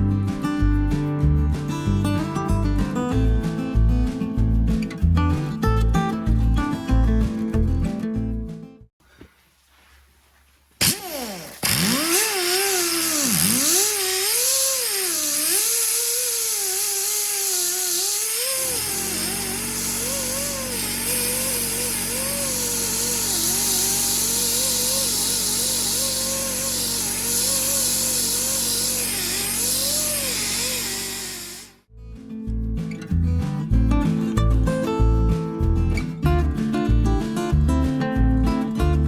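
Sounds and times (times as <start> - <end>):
electric drill spinning a hone: 10.8 - 31.8.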